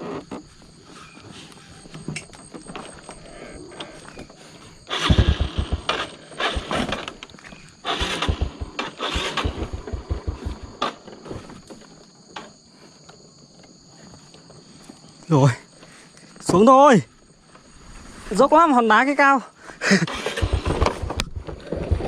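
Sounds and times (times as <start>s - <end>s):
motorbike engine revving: 4.9s - 7.2s, 7.8s - 11.0s, 20.0s - 22.0s.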